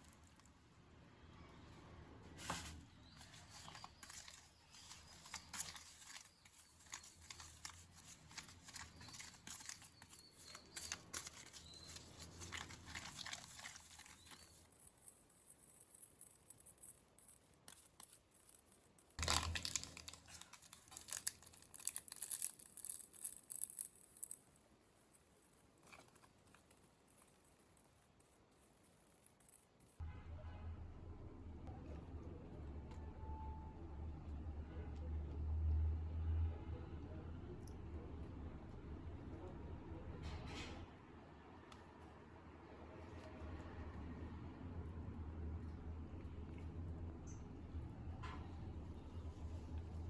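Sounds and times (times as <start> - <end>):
rustling and crinkling: 2.3 - 30.0.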